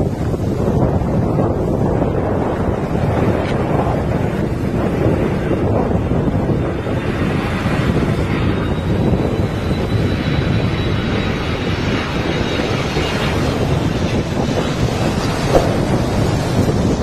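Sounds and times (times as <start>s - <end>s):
airplane engines roaring: 0.0s - 17.0s
wind rushing: 13.3s - 17.0s.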